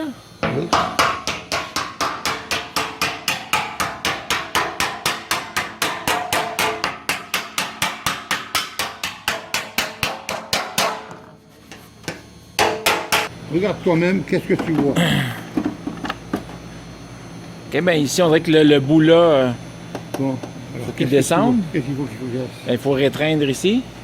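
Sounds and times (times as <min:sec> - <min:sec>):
hammer striking sheet metal: 0:00.4 - 0:11.3, 0:12.6 - 0:13.3.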